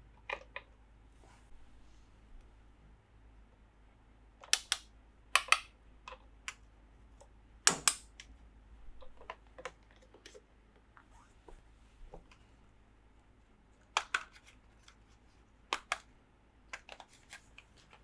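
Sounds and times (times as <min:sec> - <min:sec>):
plastic toy parts clicking: 0:04.5 - 0:04.8, 0:05.4 - 0:05.7, 0:07.7 - 0:08.3, 0:15.8 - 0:16.0.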